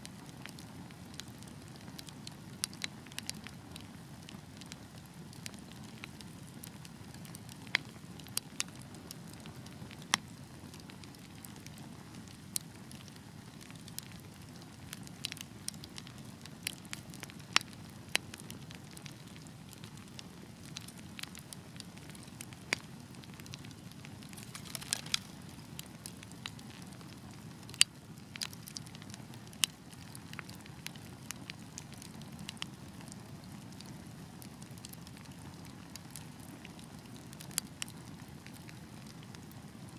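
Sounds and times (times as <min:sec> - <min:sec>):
wood fire burning: 0:00.0 - 0:39.9
logs popping: 0:24.0 - 0:26.6.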